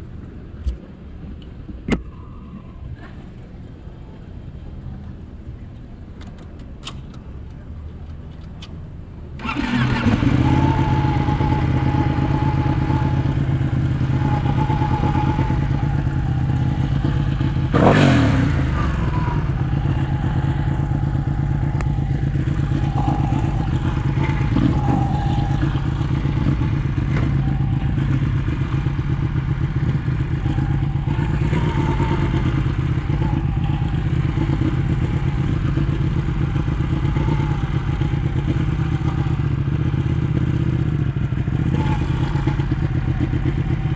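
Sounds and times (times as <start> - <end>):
motorcycle engine idling: 9.4 - 43.9.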